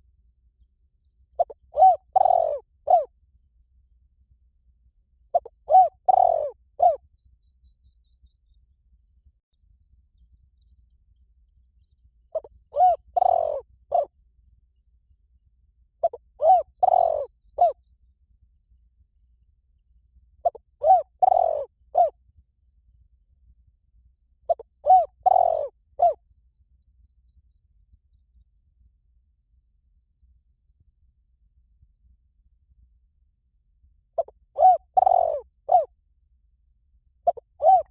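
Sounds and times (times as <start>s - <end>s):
dove cooing: 1.4s - 3.1s, 5.4s - 7.0s, 12.4s - 14.1s, 16.0s - 17.8s, 20.4s - 22.1s, 24.5s - 26.2s, 34.2s - 35.9s, 37.3s - 37.9s.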